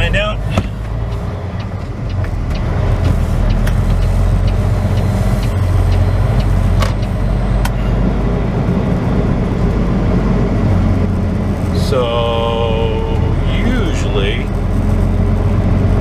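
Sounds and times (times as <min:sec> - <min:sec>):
truck diesel engine running: 0:00.0 - 0:16.0
sharp clicks: 0:00.6 - 0:07.8.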